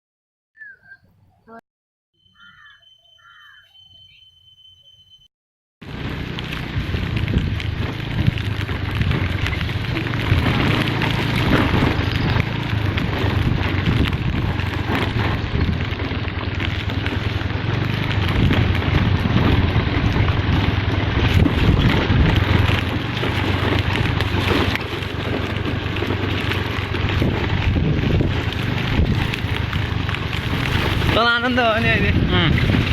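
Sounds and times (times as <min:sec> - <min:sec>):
low engine hum: 0:05.8 - 0:32.9
vehicle rushing noise: 0:05.8 - 0:32.9.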